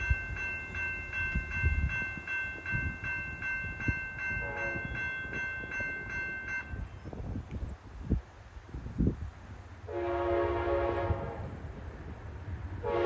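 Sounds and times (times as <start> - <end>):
railroad bell ringing: 0.0 - 7.1.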